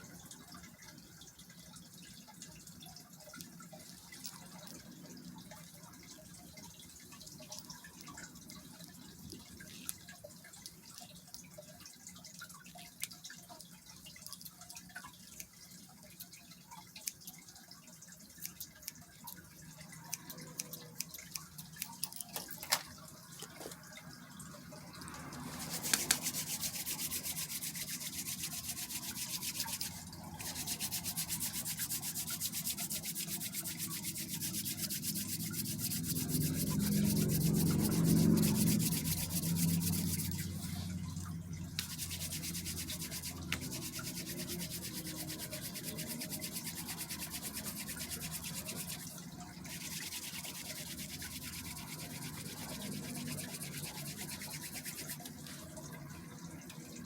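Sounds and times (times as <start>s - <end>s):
hand rubbing hair: 25.5s - 40.8s, 41.8s - 55.3s.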